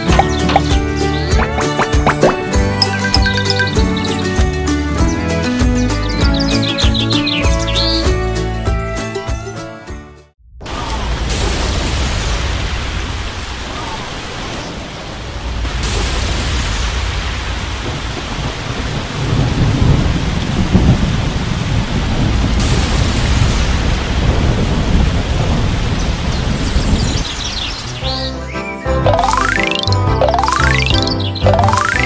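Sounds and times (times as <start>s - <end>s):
heavy rain: 10.7s - 27.8s
rolling thunder: 15.3s - 27.2s.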